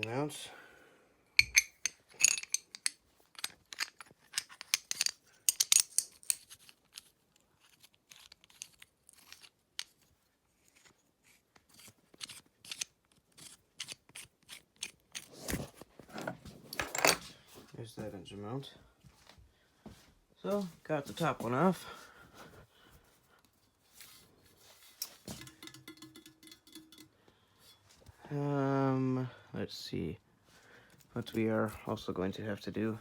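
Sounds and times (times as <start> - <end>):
metal tools and bolts clinking: 1.4 - 7.1, 15.2 - 17.3, 24.9 - 28.0.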